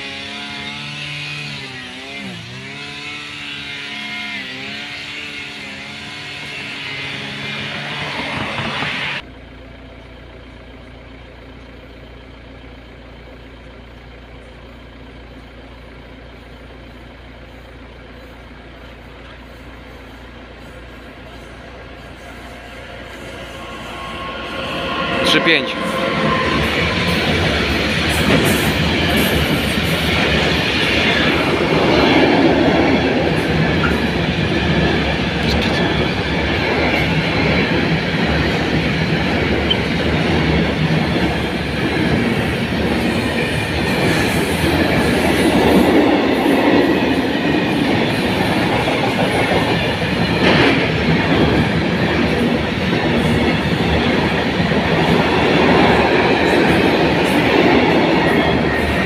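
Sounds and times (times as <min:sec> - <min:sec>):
freight train wheels rumbling and rattling: 0:00.0 - 0:59.0.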